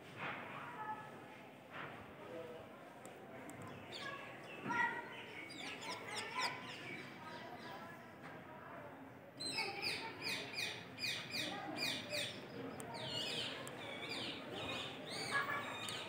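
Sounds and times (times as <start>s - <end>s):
birds chirping: 9.4s - 16.0s.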